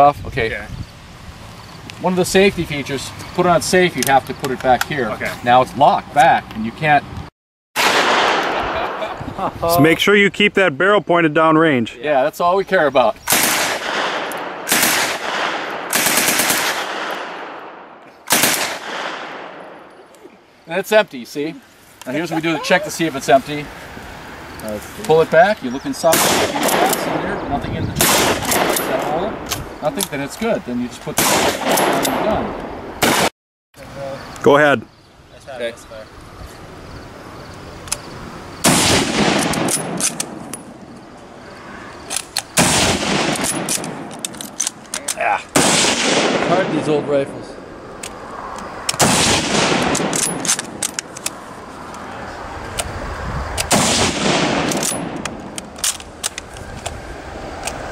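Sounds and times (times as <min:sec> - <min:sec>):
rifle shots with rolling echo: 0:07.8 - 0:09.2, 0:13.3 - 0:19.9, 0:26.0 - 0:29.4, 0:31.2 - 0:33.3, 0:38.6 - 0:40.8, 0:42.5 - 0:44.7, 0:45.6 - 0:47.6, 0:48.9 - 0:50.9, 0:53.6 - 0:56.2
submachine gun full-auto bursts: 0:15.9 - 0:16.9.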